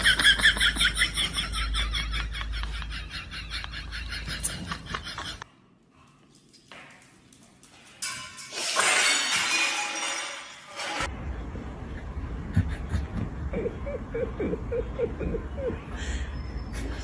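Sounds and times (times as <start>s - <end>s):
crash and clatter of breaking: 8.0s - 11.1s.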